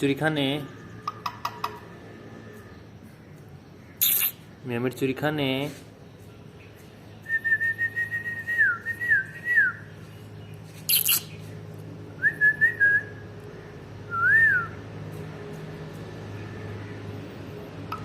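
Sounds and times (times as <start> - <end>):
parrot whistling: 10.9 - 11.3.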